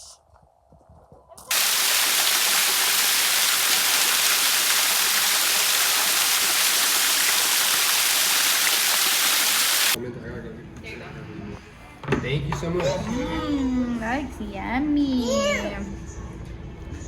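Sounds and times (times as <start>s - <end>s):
waterfall rushing: 1.5s - 10.0s.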